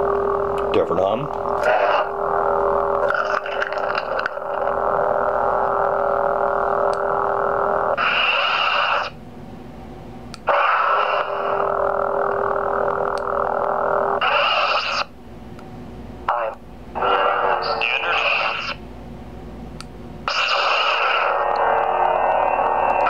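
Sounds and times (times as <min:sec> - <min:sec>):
lightsaber humming: 0:00.0 - 0:15.2, 0:16.2 - 0:18.9, 0:19.7 - 0:23.0
lightsaber igniting: 0:08.0 - 0:09.2, 0:10.4 - 0:11.6, 0:14.2 - 0:15.1, 0:20.3 - 0:23.0.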